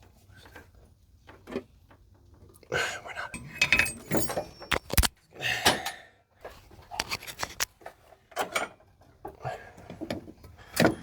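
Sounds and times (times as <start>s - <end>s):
metal clicks and knocks: 3.4s - 5.1s.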